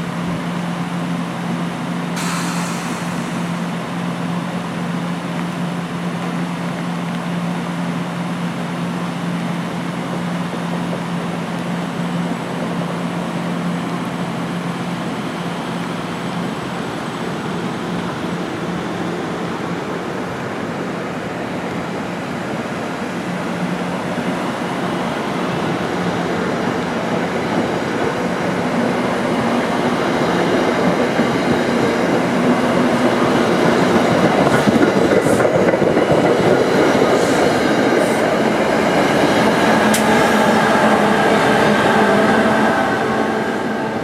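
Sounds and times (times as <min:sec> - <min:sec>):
train rumbling: 0:00.0 - 0:44.0
wheels clattering on rail joints: 0:25.9 - 0:43.5.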